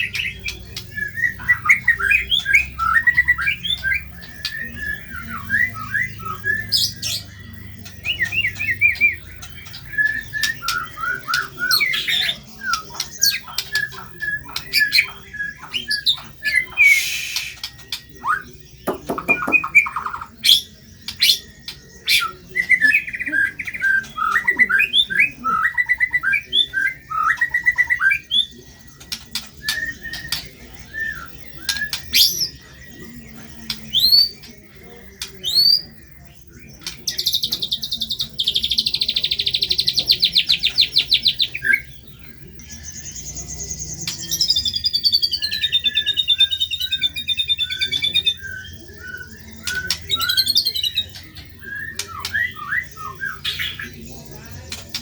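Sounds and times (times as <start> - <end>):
songbirds chirping and whistling: 0.0 - 55.0
falling bird trill: 18.8 - 32.6.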